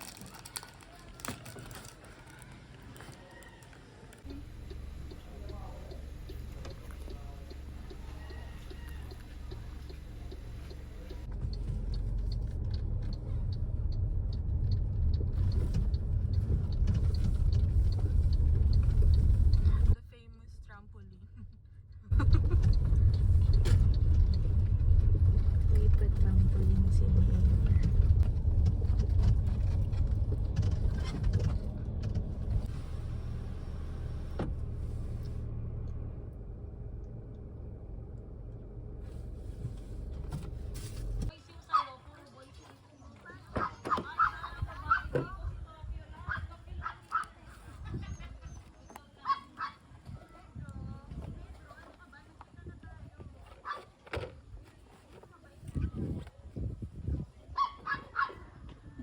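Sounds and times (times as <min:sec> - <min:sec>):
knocks and clicks over rough ground: 0:00.0 - 0:20.0, 0:21.9 - 0:32.7
car engine and tyres rumbling: 0:00.0 - 0:42.0, 0:42.6 - 0:59.0.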